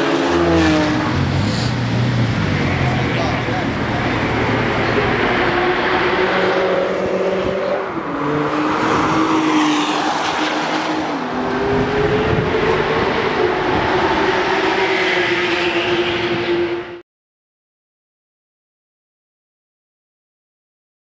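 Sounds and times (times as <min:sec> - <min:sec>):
car engine and exhaust running: 0:00.9 - 0:05.6.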